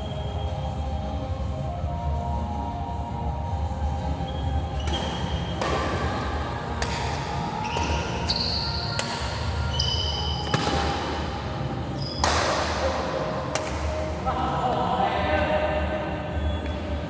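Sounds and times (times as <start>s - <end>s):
low hall rumble: 0.0s - 17.0s
shoes squeaking on court floor: 4.2s - 11.3s, 11.9s - 12.5s, 16.3s - 17.0s
racket hitting shuttlecock: 4.8s - 11.3s, 12.1s - 14.2s.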